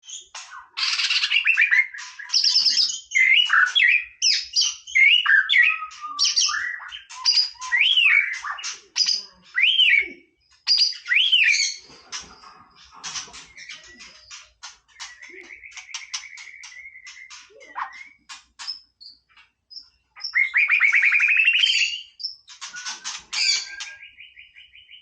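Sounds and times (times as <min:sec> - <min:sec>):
bird singing whistled phrases: 0:01.0 - 0:08.7, 0:09.5 - 0:11.8, 0:13.6 - 0:18.3, 0:20.2 - 0:25.0.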